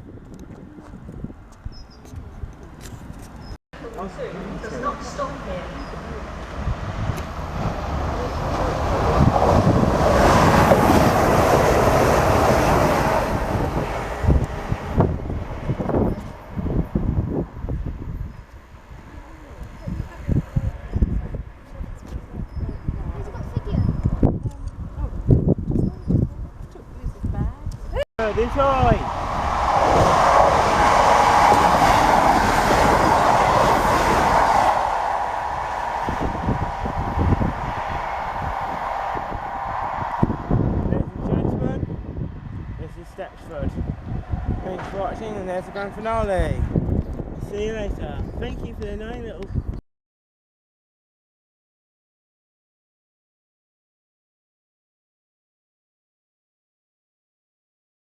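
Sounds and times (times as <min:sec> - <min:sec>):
wind buffeting microphone: 0:00.0 - 0:04.1, 0:04.7 - 0:49.8
train passing at speed: 0:04.0 - 0:21.5, 0:28.2 - 0:46.8.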